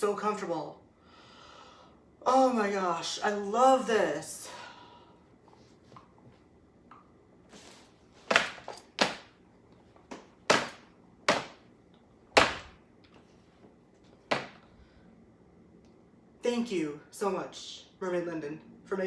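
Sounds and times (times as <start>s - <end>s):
sharp slaps or thuds: 10.5s - 11.6s, 12.4s - 12.8s.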